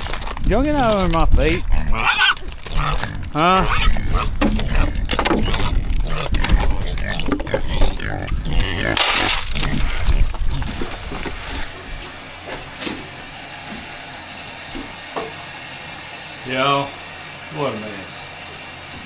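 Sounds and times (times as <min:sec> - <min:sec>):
pig grunting: 0:00.0 - 0:12.5.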